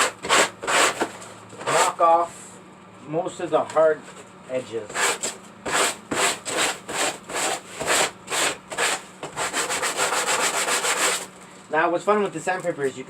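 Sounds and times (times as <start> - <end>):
sandpaper rubbing: 0.0 - 2.0, 4.9 - 11.3.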